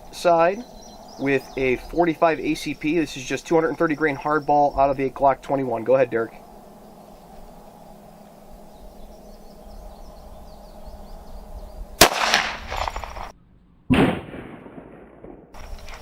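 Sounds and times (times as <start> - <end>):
faint crickets chirping: 0.0 - 13.3
pistol shot with echo: 12.0 - 13.3, 13.9 - 15.5.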